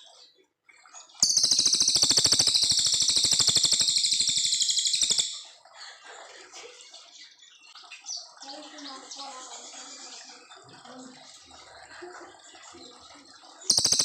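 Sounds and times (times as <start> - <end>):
faint bird twittering: 0.0 - 5.7, 7.0 - 14.0
songbird fast rattling trill: 1.2 - 5.4, 13.7 - 14.0.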